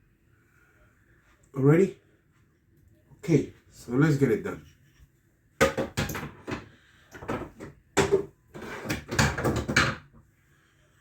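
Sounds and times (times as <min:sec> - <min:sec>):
hard objects knocking and clattering: 0:05.6 - 0:10.2.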